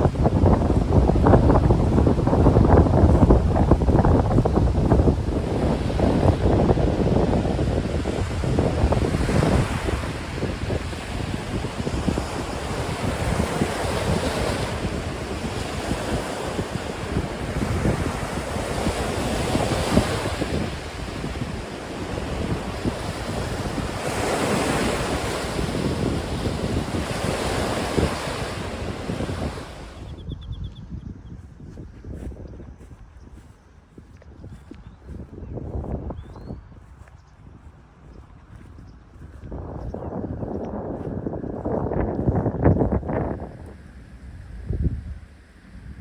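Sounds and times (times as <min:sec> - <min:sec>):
waves washing on shore: 0:00.0 - 0:30.2
wind buffeting microphone: 0:00.0 - 0:46.0.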